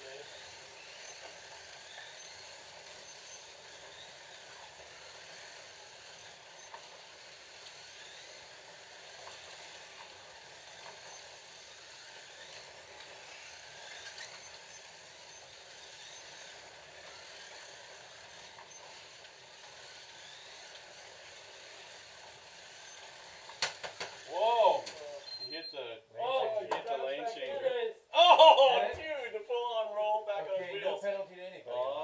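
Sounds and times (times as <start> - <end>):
slot car motors whirring: 0.0 - 25.5.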